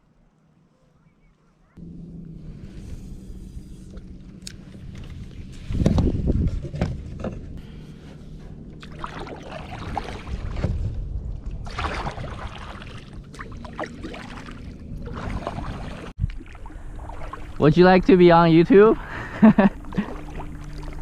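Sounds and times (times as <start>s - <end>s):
kayak paddle splashing: 8.2s - 11.0s, 11.6s - 18.0s, 18.7s - 21.0s.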